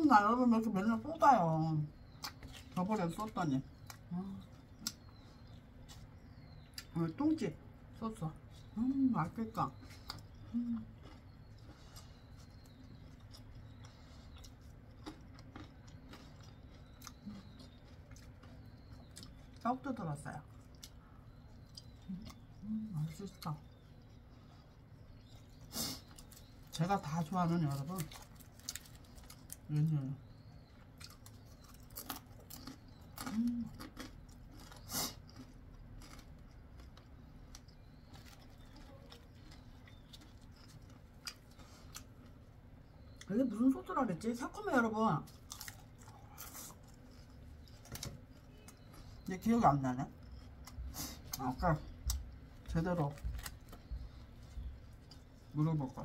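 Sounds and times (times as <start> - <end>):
low steady hum: 0.0 - 56.0
crunchy chewing: 1.8 - 7.0, 7.8 - 43.3, 44.7 - 56.0.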